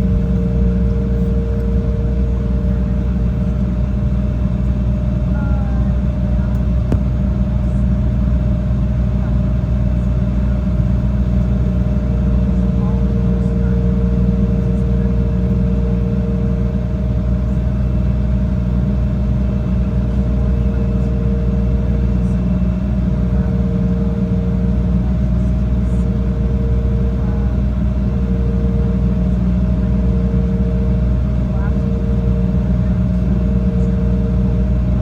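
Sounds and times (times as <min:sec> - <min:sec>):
jet engines droning in cabin: 0:00.0 - 0:35.0.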